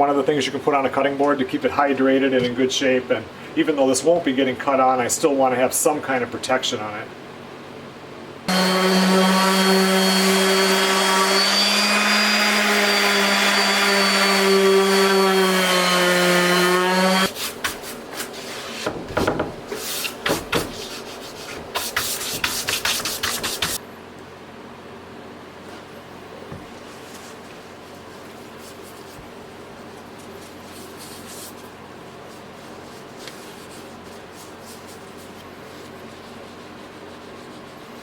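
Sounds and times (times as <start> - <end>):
electric sander running on wood: 8.5 - 17.3
sandpaper rubbing on wood: 19.8 - 23.8, 36.0 - 38.0.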